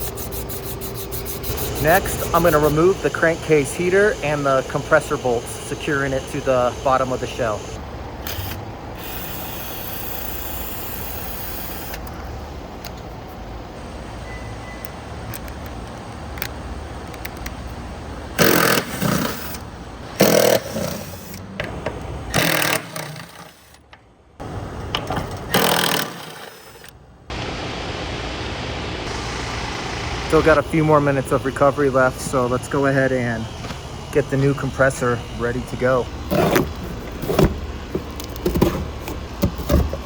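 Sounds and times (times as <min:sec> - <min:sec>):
power tool loosening bolts: 0:00.0 - 0:03.2, 0:03.9 - 0:12.2, 0:18.4 - 0:21.5, 0:22.3 - 0:23.9, 0:24.9 - 0:26.9, 0:36.3 - 0:40.0
machine running steadily: 0:00.0 - 0:13.7, 0:15.3 - 0:40.0.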